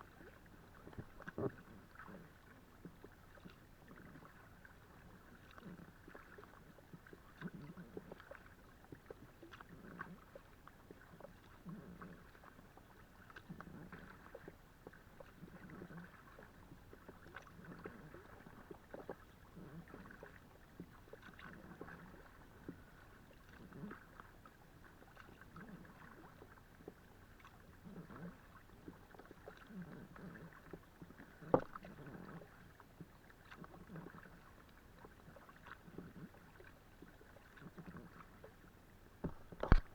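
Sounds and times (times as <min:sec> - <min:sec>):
paddle strokes swishing in water: 0:00.0 - 0:39.9
paddle knocking on kayak: 0:31.5 - 0:31.8, 0:39.2 - 0:39.9.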